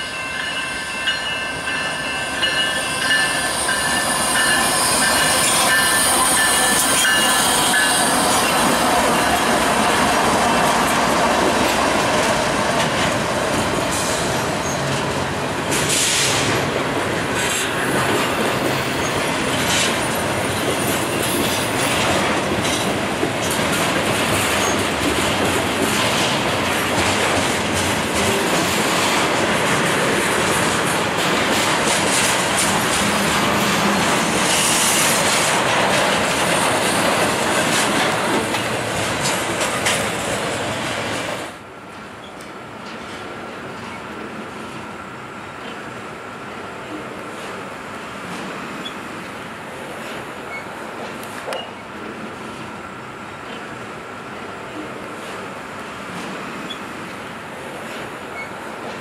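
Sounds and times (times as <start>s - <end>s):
freight train rumble and clatter: 0.0s - 59.0s.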